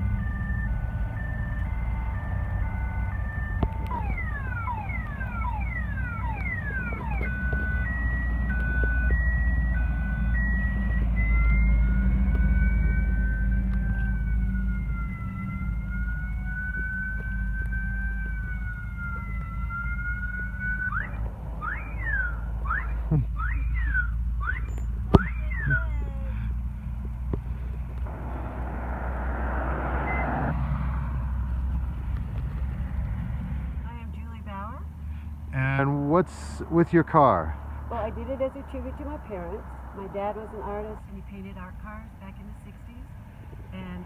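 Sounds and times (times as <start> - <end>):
electronic siren: 0.0 - 26.5, 28.0 - 33.3
low rumble: 0.0 - 44.0.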